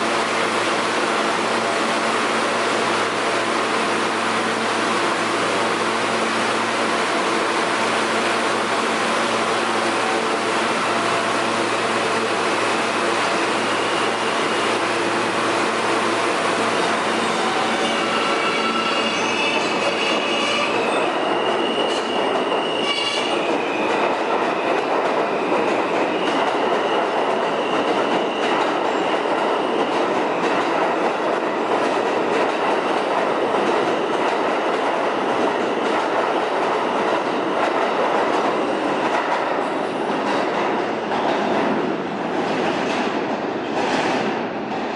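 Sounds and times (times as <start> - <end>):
high-pitched wheel squeal: 17.3 - 23.3
train wheels clattering on rails: 17.4 - 44.9.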